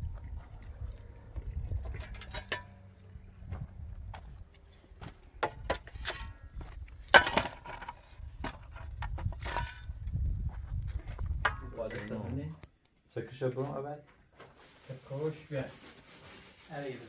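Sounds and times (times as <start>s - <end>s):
objects clicking and knocking: 1.8s - 2.9s, 7.1s - 9.9s.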